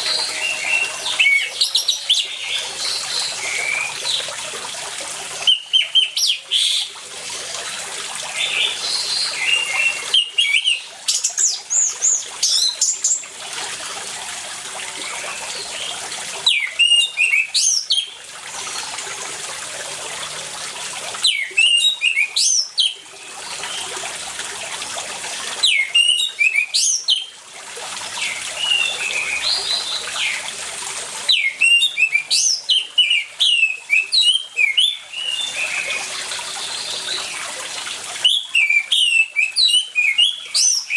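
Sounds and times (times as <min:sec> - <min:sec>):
thrush singing: 0:00.0 - 0:02.5
running water: 0:00.0 - 0:40.9.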